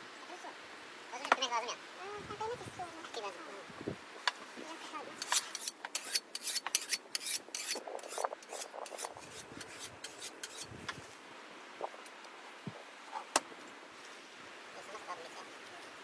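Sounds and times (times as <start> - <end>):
rasping scraping strokes: 5.2 - 11.0.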